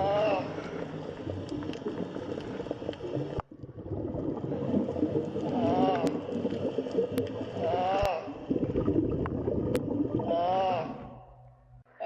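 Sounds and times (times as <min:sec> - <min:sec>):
sea turtle moaning call: 0:00.0 - 0:00.9, 0:05.4 - 0:06.3, 0:10.2 - 0:11.4.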